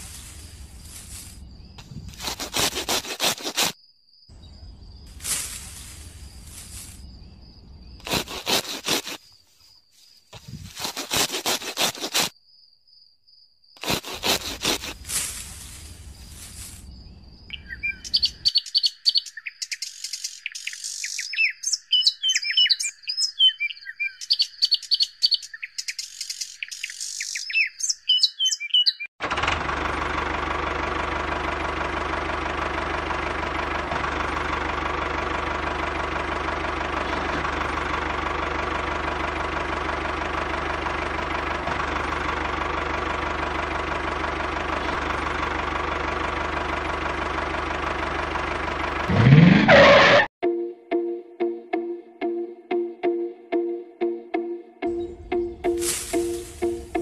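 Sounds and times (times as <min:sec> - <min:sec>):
grass rustling and snapping: 0:00.0 - 0:03.8, 0:05.0 - 0:07.1, 0:08.0 - 0:12.4, 0:13.8 - 0:16.9, 0:55.7 - 0:57.0
birds chirping: 0:15.6 - 0:29.1, 0:54.8 - 0:57.0.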